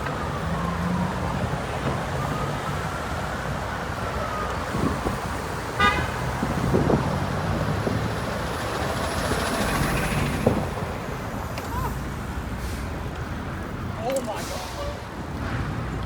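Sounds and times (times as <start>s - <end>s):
street traffic noise: 0.0s - 16.0s
car horn toot: 5.8s - 6.3s.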